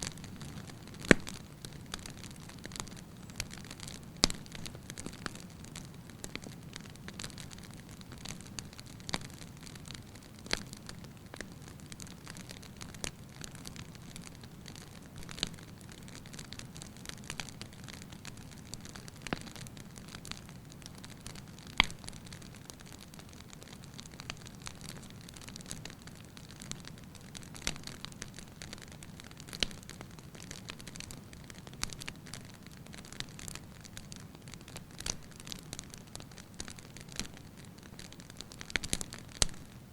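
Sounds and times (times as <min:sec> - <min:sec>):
sharp pops of fire: 0:00.0 - 0:07.6, 0:21.2 - 0:26.8, 0:27.4 - 0:39.8
wood fire crackling: 0:00.0 - 0:39.9.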